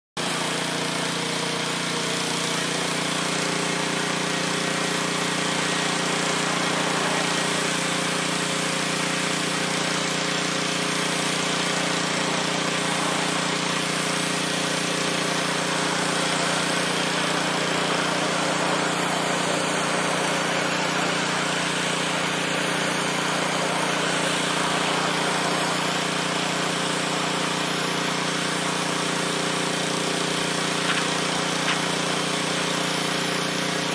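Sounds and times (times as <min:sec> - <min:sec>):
pressure washer motor hum: 0:00.2 - 0:33.9
water jet spraying brick: 0:00.2 - 0:33.9.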